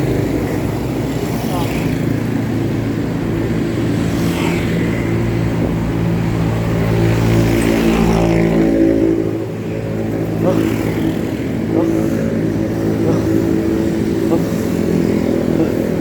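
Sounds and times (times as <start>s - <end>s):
motor vehicle engine running: 0.0s - 16.0s
road noise: 0.0s - 16.0s
wind: 0.0s - 16.0s.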